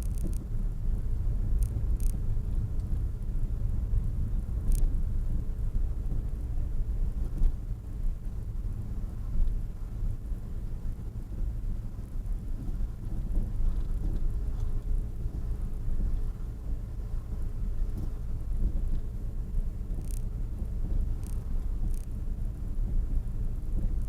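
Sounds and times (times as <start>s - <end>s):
faint high ticks: 0.0s - 0.5s, 1.6s - 2.2s, 4.6s - 4.9s, 19.9s - 20.4s, 21.0s - 22.2s.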